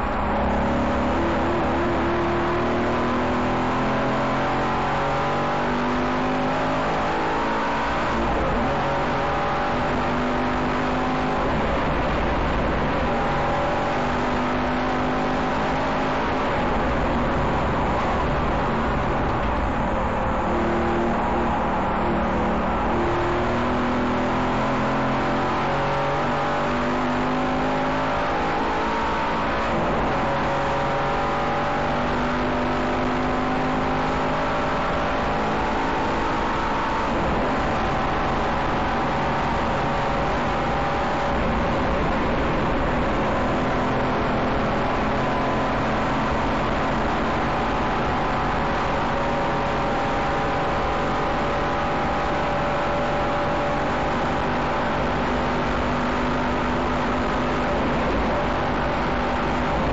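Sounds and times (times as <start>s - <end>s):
car engine accelerating hard: 0.0s - 59.9s.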